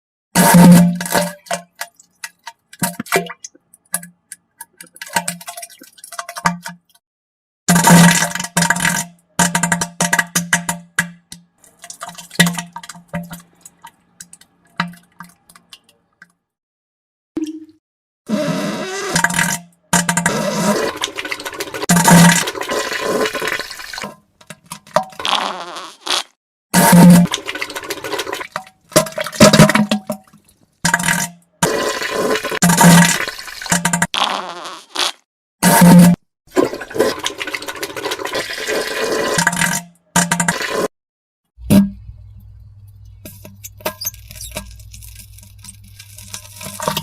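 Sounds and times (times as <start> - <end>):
wet squelchy fart sounds: 18.3 - 24.1, 25.1 - 27.4, 31.1 - 37.3.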